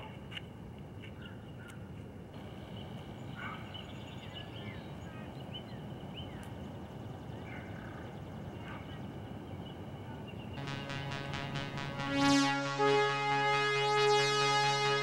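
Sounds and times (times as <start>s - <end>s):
small birds chirping: 2.4s - 10.8s.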